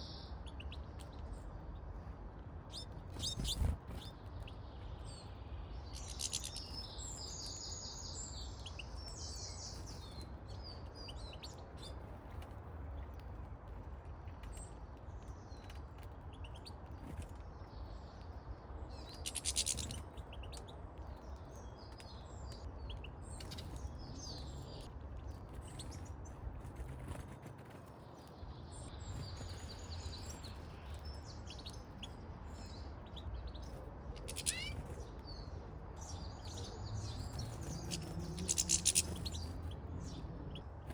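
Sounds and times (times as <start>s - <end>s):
finches twittering and chirping: 2.7s - 12.0s, 18.9s - 27.9s, 28.6s - 40.9s.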